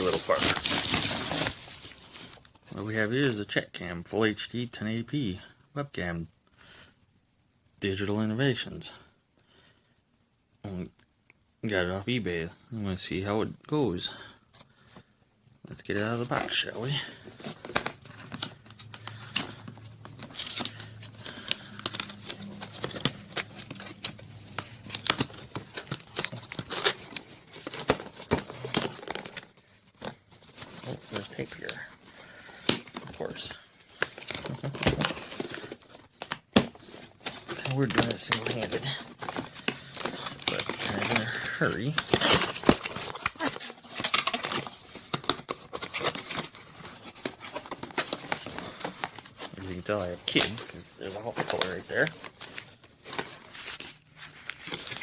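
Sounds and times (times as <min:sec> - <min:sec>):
packaging crinkling and tearing: 0:00.0 - 0:02.5, 0:16.2 - 0:55.0.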